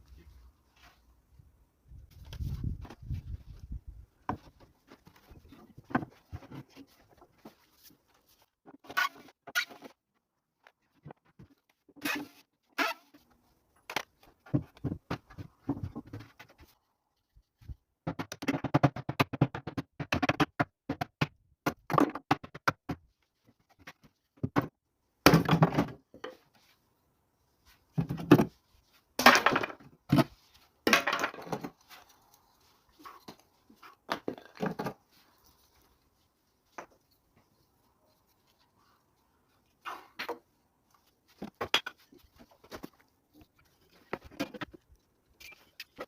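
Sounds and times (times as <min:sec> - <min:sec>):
irregular knocking and clattering: 0:13.9 - 0:16.8, 0:18.0 - 0:26.4.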